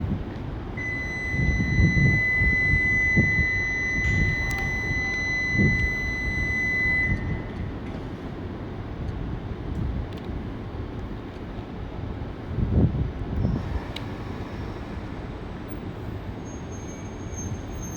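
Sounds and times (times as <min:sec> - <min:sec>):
low rumbling noise: 0:00.0 - 0:10.8
departure buzzer high tone: 0:00.8 - 0:07.5.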